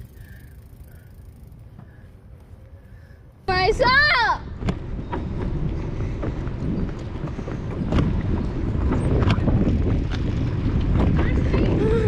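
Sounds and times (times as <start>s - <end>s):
wind buffeting microphone: 3.7s - 12.0s.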